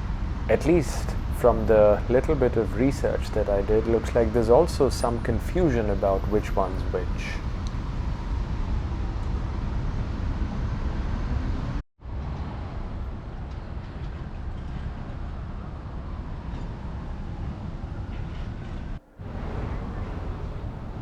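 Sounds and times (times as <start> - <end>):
traffic rumble: 0.0 - 8.4, 19.0 - 21.0.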